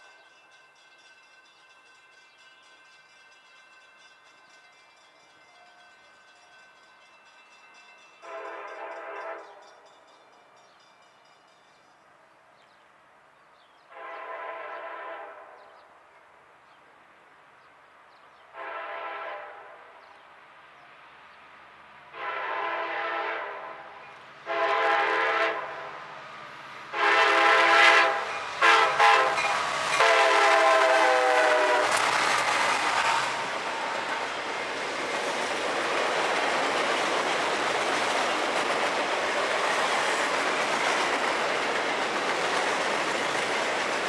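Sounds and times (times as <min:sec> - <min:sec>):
train wheels on rails: 0:00.0 - 0:12.8, 0:20.0 - 0:44.0
train air horn blasts: 0:08.2 - 0:09.6, 0:13.9 - 0:15.8, 0:18.5 - 0:20.0, 0:22.1 - 0:26.0, 0:26.9 - 0:33.9.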